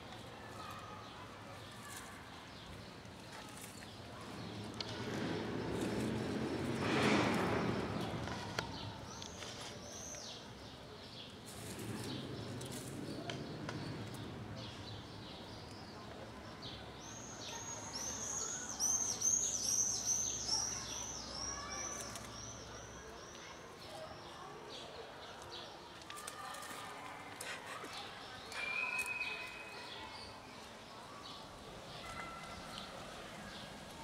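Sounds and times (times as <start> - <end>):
songbird chirping: 0.0 - 34.0.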